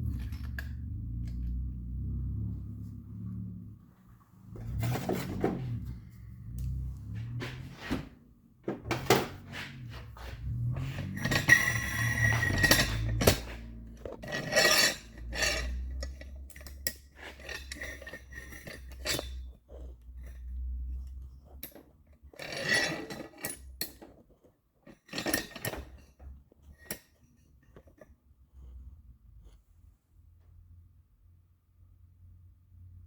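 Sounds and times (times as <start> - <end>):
low hum: 0.0 - 7.9
metal tools clinking and scraping: 8.7 - 28.2.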